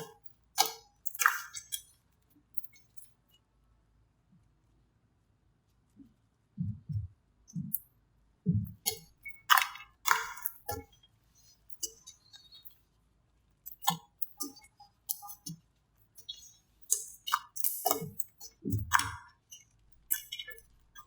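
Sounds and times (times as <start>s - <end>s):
slime squelching: 0.0s - 2.0s, 8.5s - 12.8s.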